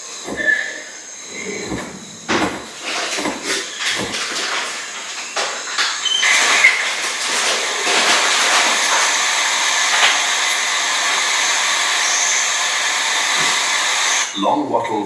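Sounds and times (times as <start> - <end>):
loud rushing hiss: 0.0 - 14.3.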